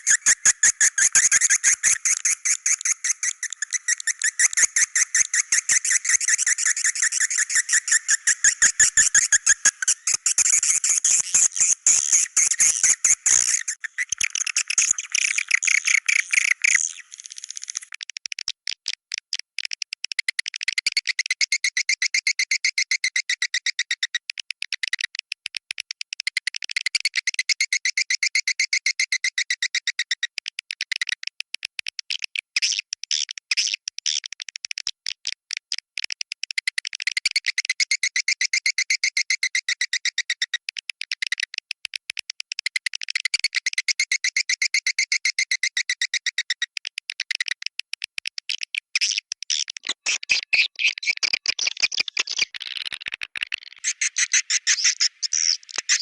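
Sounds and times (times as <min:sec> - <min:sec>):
swiftlets chirping and twittering: 0:00.0 - 0:17.9, 0:53.6 - 0:56.0.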